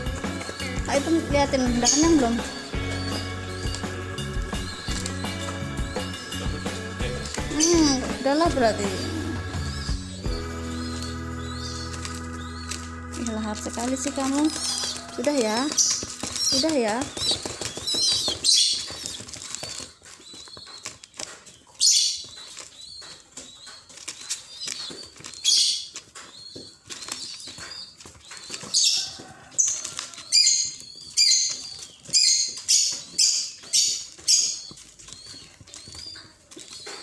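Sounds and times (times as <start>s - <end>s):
nestling bird cheeping: 0.0s - 21.0s.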